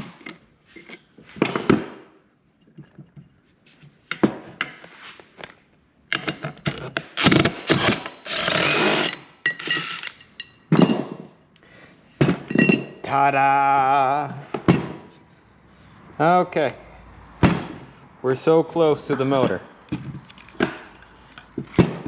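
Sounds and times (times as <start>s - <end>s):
tools clicking and knocking: 4.1s - 11.3s, 19.9s - 22.0s.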